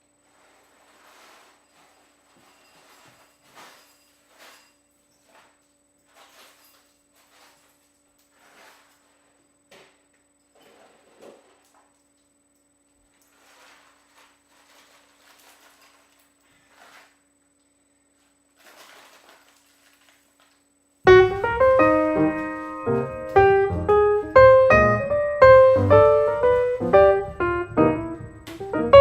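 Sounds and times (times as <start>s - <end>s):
soft rustling: 0.1s - 9.4s, 13.2s - 17.2s, 18.1s - 20.4s
piano music: 21.1s - 29.0s.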